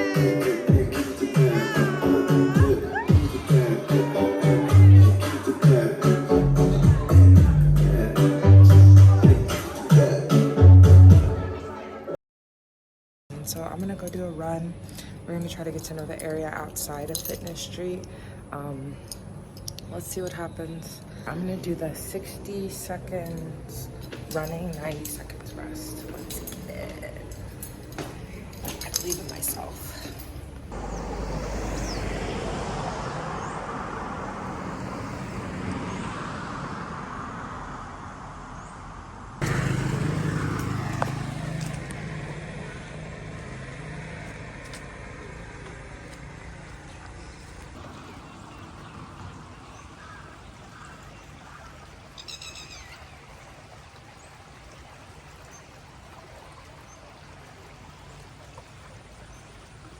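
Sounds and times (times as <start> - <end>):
hum of traffic: 13.3 - 59.9
car engine passing: 30.4 - 49.6.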